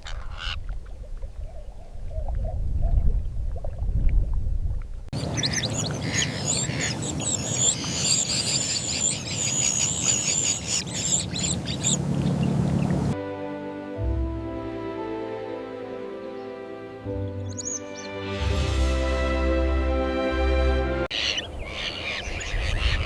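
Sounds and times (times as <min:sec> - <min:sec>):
birds chirping: 0:05.2 - 0:13.2, 0:16.0 - 0:18.4, 0:21.1 - 0:23.0.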